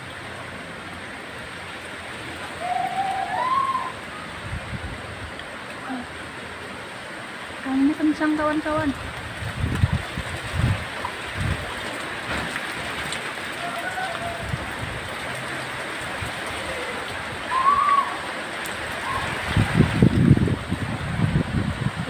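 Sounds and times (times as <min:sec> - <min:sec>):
heavy rain hissing: 0:00.0 - 0:22.0
wind gusting: 0:02.3 - 0:05.4, 0:07.7 - 0:22.0.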